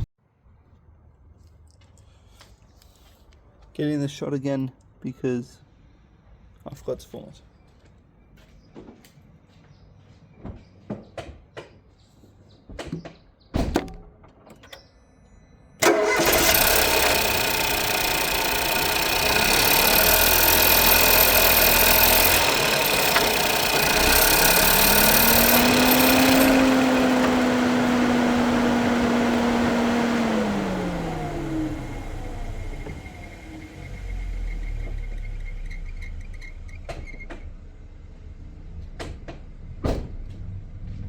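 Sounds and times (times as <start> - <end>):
rising whine: 15.8 - 35.9
car engine starting and running: 15.8 - 41.0.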